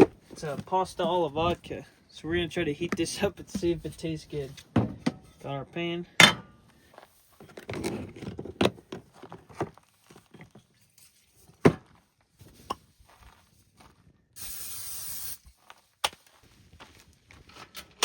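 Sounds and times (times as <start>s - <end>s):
spray hiss: 14.4s - 15.4s.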